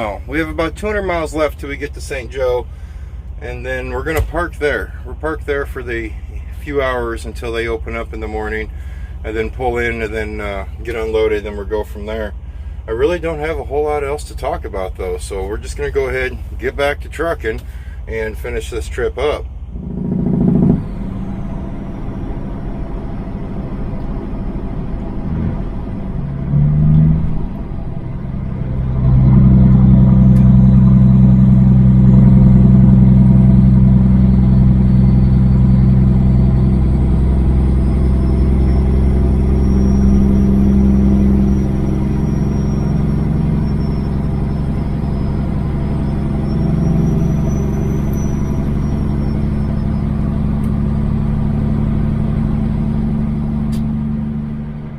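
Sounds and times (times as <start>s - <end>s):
diesel truck engine under load: 0.0s - 54.9s
faint high whine: 28.3s - 50.8s.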